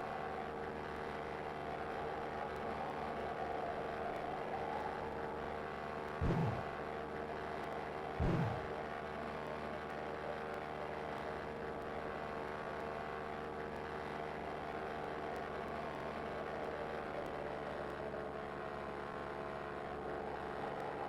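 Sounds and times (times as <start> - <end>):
airplane engine drone: 0.0 - 10.9
low thumps: 6.2 - 6.7, 8.2 - 8.7.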